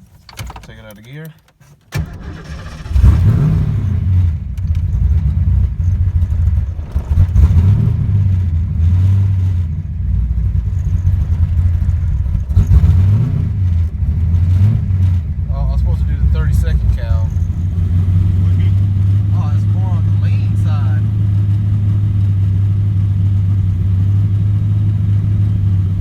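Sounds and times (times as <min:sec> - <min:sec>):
vee eight engine revving: 0:02.2 - 0:04.4, 0:11.2 - 0:26.0.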